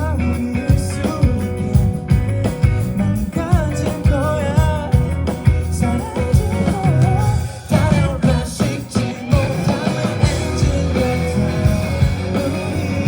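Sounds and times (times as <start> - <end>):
rock band playing: 0.0 - 13.0
steady drum beat: 0.0 - 13.0
person singing: 3.2 - 13.0.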